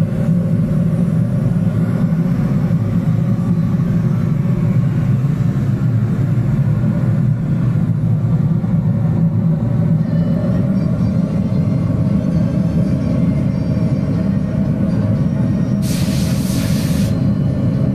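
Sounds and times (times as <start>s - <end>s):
furnace burner rumble: 15.7s - 17.9s.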